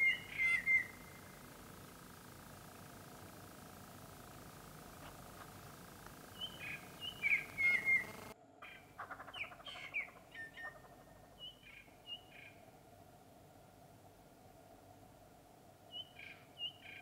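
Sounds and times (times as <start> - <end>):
bird rattling call: 0.0 - 1.3
small birds chirping: 0.0 - 12.7, 15.9 - 17.0.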